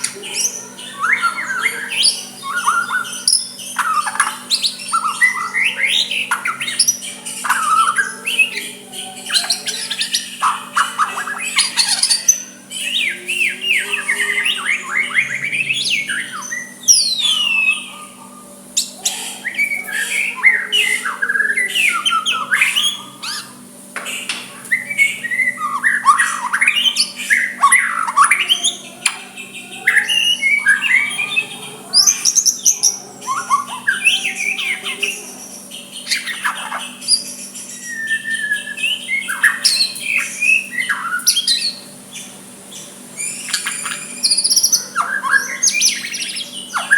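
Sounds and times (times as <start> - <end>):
bird singing varied whistles: 33.3 - 41.8.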